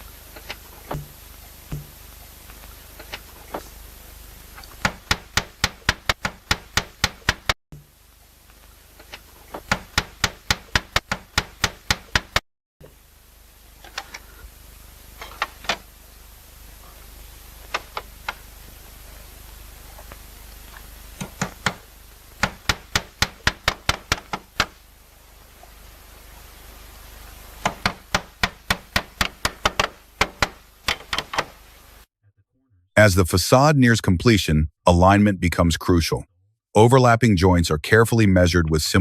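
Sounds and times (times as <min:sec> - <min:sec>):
hammer tapping slate: 0:04.6 - 0:07.9, 0:09.5 - 0:12.4, 0:22.4 - 0:24.8, 0:27.6 - 0:31.5.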